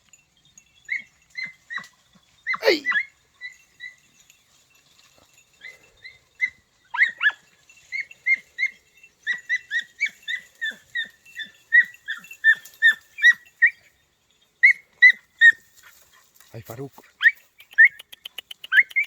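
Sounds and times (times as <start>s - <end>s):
puppies yelping: 5.6s - 13.8s.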